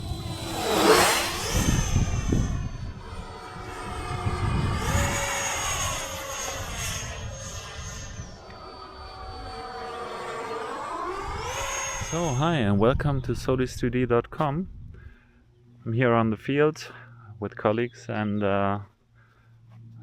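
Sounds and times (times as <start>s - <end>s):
rushing air: 0.0s - 12.8s
electric fan whine: 0.0s - 15.7s.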